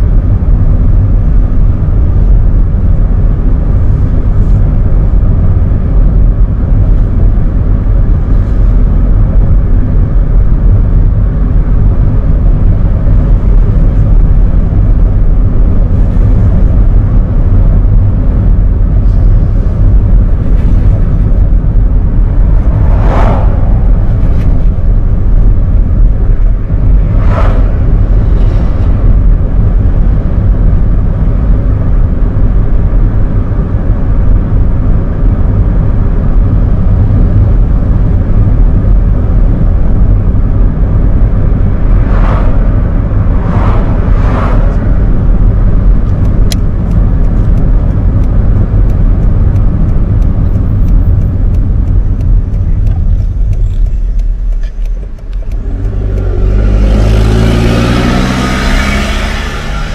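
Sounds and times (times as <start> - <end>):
car engine and road noise: 0.0 - 59.9
vehicles whooshing past: 19.0 - 30.5, 40.8 - 48.3, 49.1 - 59.9.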